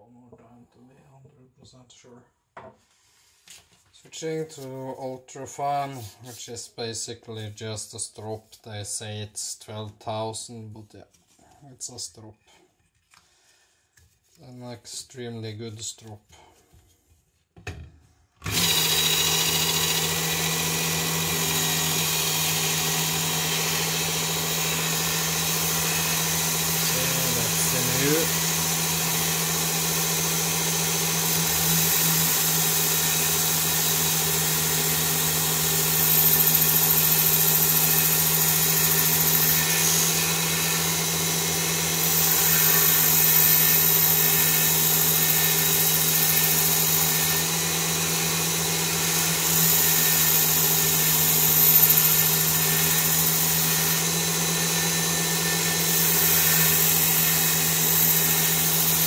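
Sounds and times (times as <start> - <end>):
belt sharpener motor hum: 18.4 - 59.0
blade hissing on sharpening belt: 25.4 - 30.0, 35.8 - 41.1, 42.0 - 47.4, 49.4 - 53.7.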